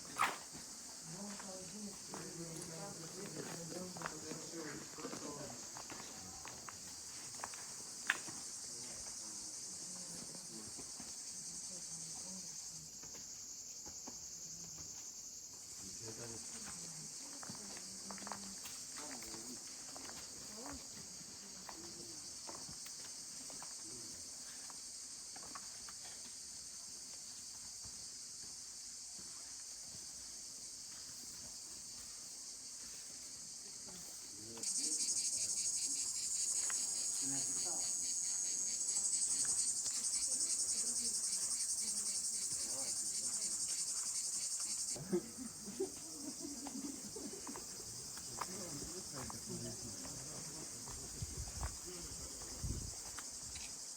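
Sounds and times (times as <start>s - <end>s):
insects chirring: 0.0s - 53.9s.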